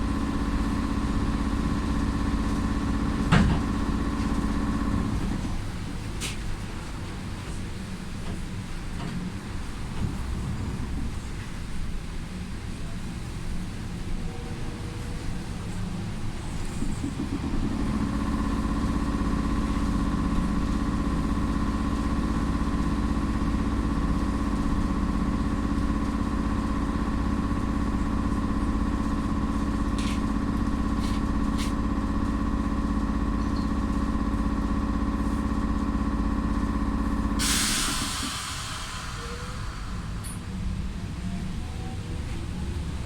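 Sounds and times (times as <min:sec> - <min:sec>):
trolleybus electric hum: 0:00.0 - 0:43.0
loud air hiss burst: 0:37.4 - 0:40.7.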